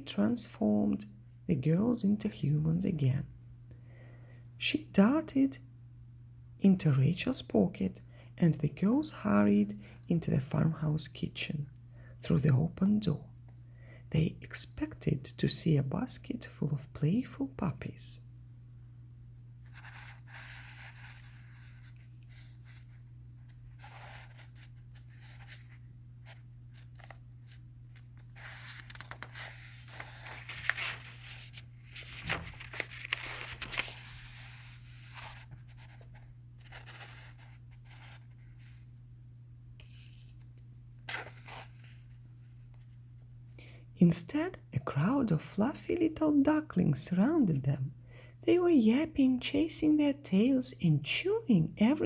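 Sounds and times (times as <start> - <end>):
faint low hum: 0.0 - 52.0
book pages rustling and turning: 19.6 - 38.8, 39.8 - 43.0.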